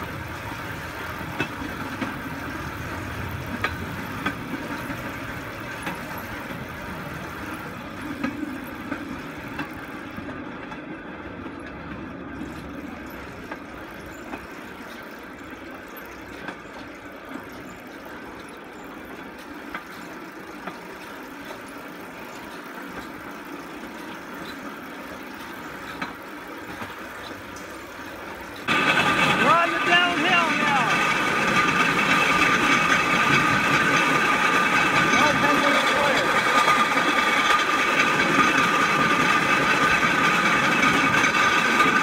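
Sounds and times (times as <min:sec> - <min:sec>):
steel wheels rolling on rails: 0:00.0 - 0:42.0
sharp rail click: 0:25.8 - 0:42.0.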